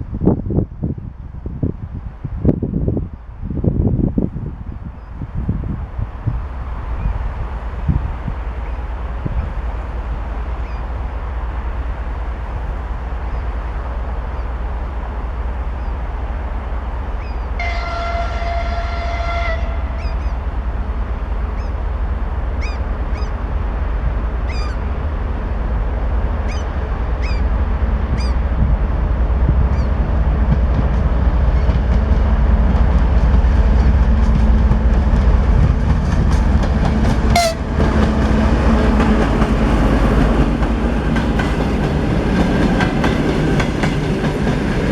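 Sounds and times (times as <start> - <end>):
diesel locomotive rumble: 0.0 - 44.9
locomotive horn blast: 17.6 - 21.1, 37.2 - 38.0
train wheels clacking: 29.8 - 44.9.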